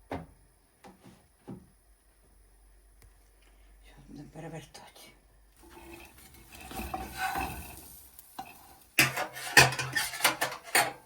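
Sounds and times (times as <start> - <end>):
utensils scraping a pan: 5.6 - 11.0
metal clatters and knocks: 8.4 - 11.0.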